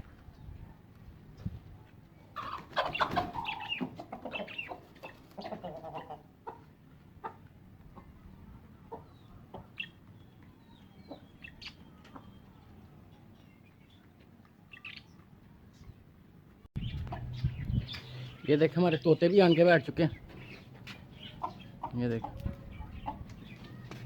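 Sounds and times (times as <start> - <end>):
hens clucking: 2.3 - 10.1, 11.0 - 12.5, 16.9 - 24.0.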